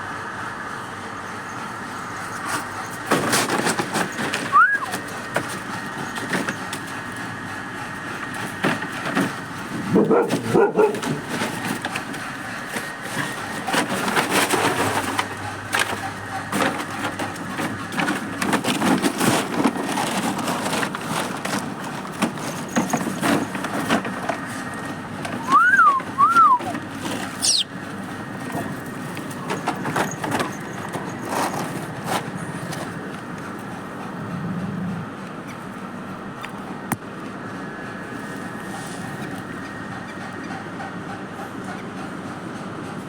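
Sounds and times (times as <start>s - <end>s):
dogs scuffling in loose soil: 1.8s - 7.3s, 8.0s - 34.2s
dog squeaks: 27.4s - 27.7s.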